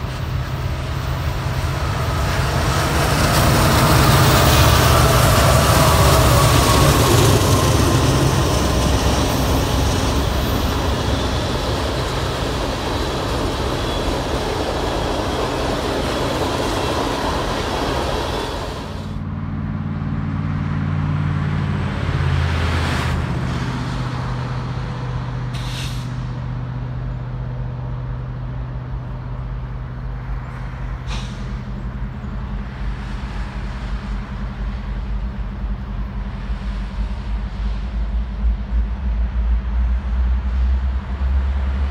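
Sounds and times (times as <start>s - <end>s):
train wheels rushing on rail: 0.0s - 19.2s, 21.6s - 41.9s
low engine drone: 0.0s - 41.9s.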